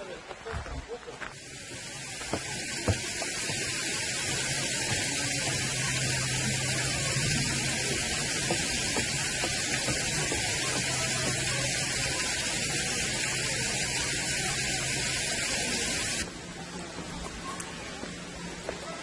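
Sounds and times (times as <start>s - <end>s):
water splashing over rocks: 0.1s - 16.3s.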